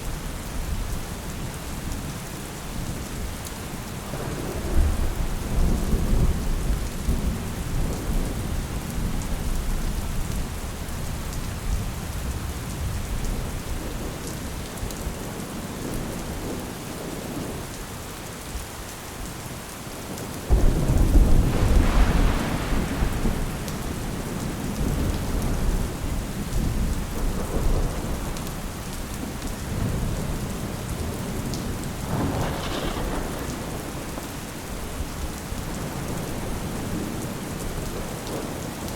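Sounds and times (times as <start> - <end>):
steady rain: 0.0 - 38.9
rolling thunder: 4.0 - 10.4, 20.5 - 38.8.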